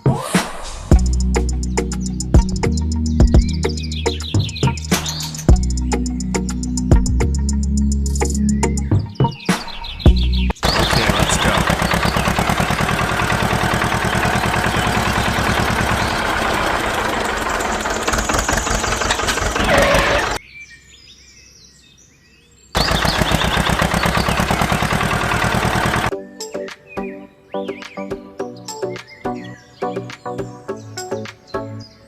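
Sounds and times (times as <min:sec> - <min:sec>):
small engine chugging: 0:10.6 - 0:20.4, 0:22.8 - 0:26.1.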